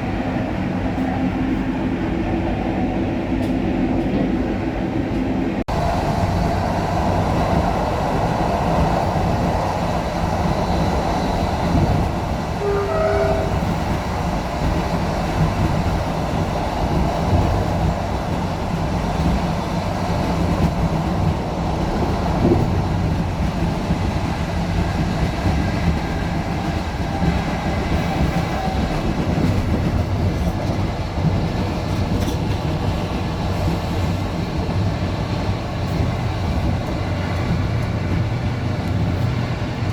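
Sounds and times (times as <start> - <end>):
train carriage rumbling on rails: 0.0 - 39.9.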